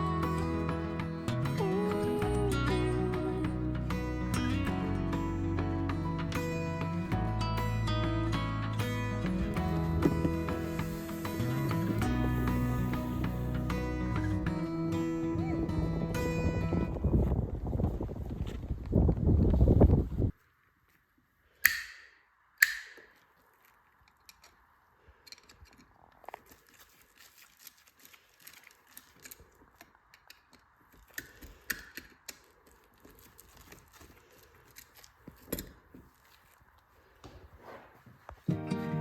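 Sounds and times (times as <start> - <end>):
background music: 0.0 - 17.0, 38.5 - 39.0
sharp clicks: 21.6 - 23.2.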